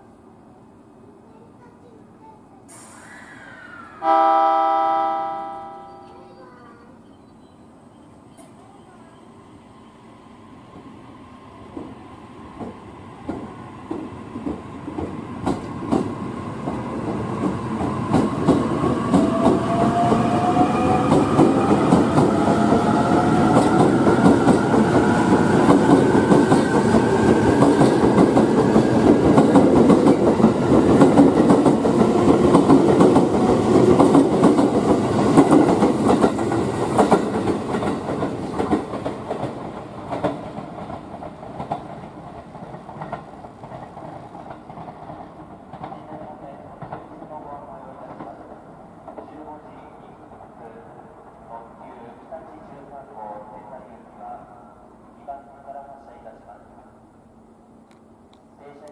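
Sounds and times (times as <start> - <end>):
train whine: 2.7 - 58.5
train rumble: 8.2 - 54.4.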